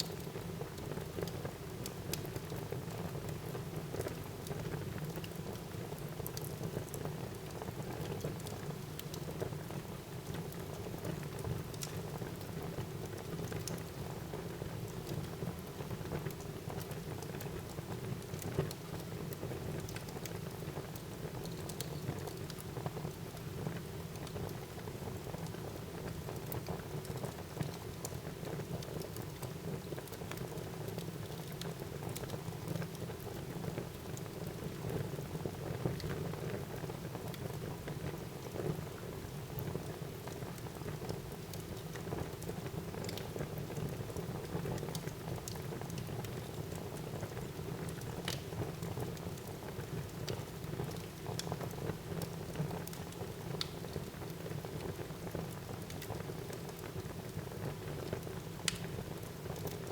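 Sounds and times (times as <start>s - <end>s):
fire burning rustle: 0.0s - 59.9s
wood crackling and popping: 16.0s - 38.7s, 39.6s - 59.9s.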